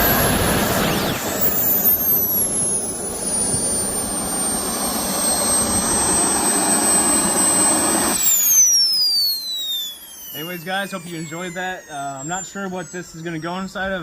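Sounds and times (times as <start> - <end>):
jet turbine roaring and whining: 0.0 - 14.0.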